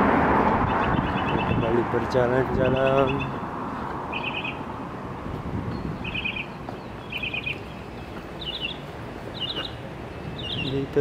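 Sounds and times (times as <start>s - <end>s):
bird calling in high notes: 4.1s - 4.6s, 6.0s - 7.8s.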